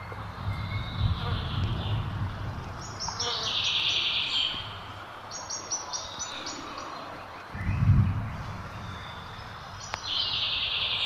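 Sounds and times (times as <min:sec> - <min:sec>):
low rumble: 0:07.5 - 0:09.9.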